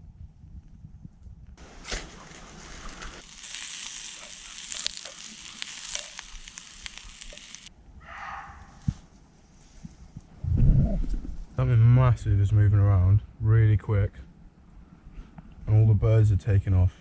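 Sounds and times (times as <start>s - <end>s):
food sizzling in a pan: 1.6s - 7.7s.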